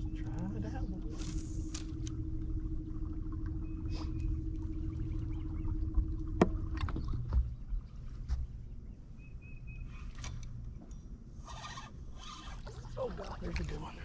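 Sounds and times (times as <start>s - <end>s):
low rumble: 0.0s - 8.9s
steady hum: 0.0s - 9.2s.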